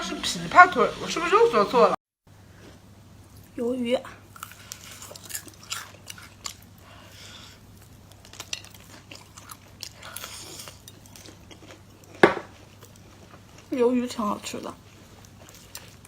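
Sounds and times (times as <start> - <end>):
person chewing wetly: 4.3 - 13.8, 14.5 - 16.0.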